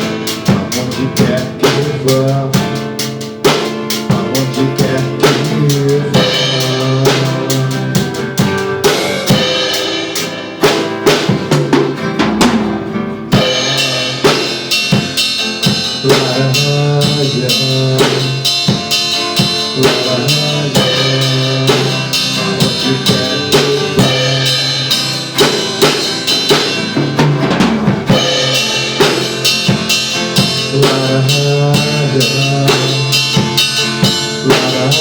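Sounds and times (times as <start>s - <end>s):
bass and guitar chords: 0.0s - 35.0s
drum kit beat: 0.0s - 35.0s.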